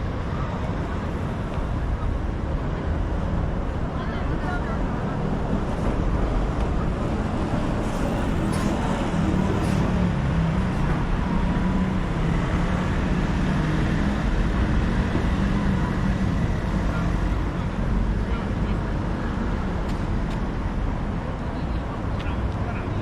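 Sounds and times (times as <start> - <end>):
engine humming nearby: 0.0 - 23.0
passing vehicles: 0.0 - 23.0.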